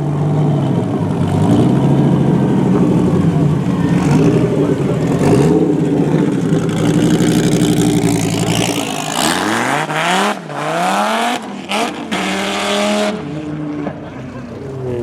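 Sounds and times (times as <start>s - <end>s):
car engine idling: 0.0s - 9.4s
car engine revving: 0.0s - 15.0s.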